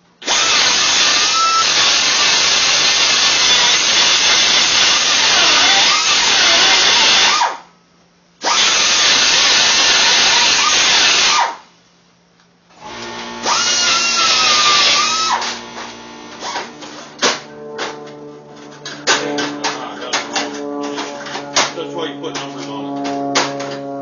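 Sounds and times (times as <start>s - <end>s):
hissing power tool: 12.8s - 18.1s.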